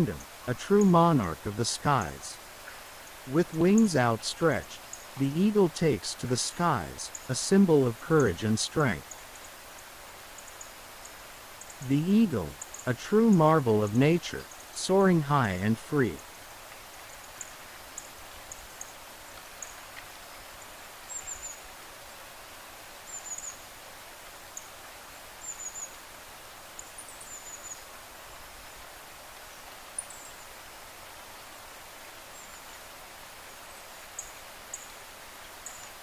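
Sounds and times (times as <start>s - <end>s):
small birds chirping: 0.0s - 21.8s, 22.9s - 23.8s, 24.4s - 28.5s, 29.4s - 32.9s, 33.6s - 36.0s
steady outdoor hiss: 0.0s - 36.0s.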